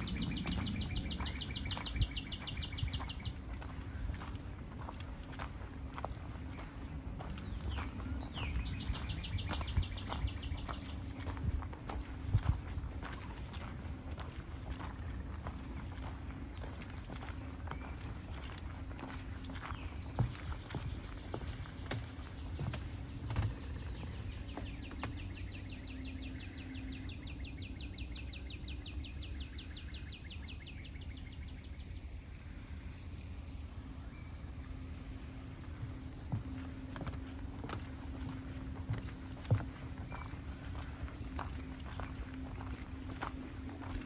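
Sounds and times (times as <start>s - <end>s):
steady low rumble: 0.0s - 44.0s
footsteps thudding: 35.8s - 44.0s.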